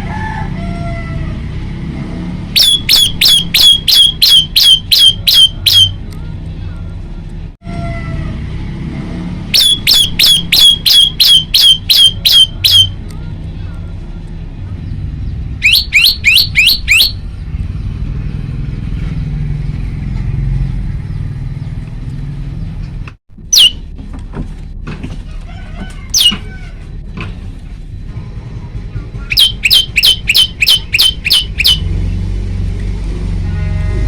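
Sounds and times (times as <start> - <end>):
bird singing sharp high notes: 2.6 - 6.0, 9.6 - 13.0, 15.6 - 17.3, 23.4 - 23.8, 29.3 - 31.9.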